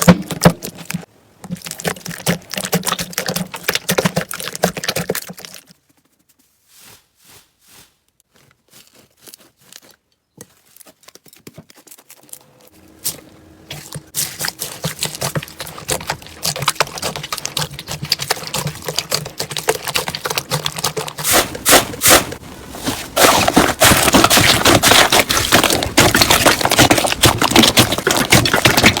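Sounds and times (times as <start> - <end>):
slime squished by hand: 13.0 - 29.0.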